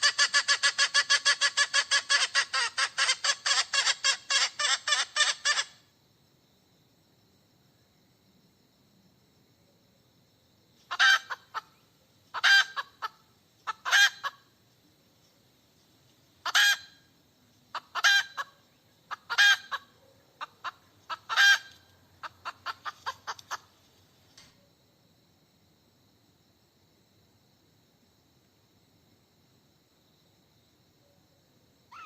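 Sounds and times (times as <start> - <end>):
hen cackling: 0.0 - 5.8, 10.9 - 14.5, 16.4 - 17.1, 17.7 - 23.7.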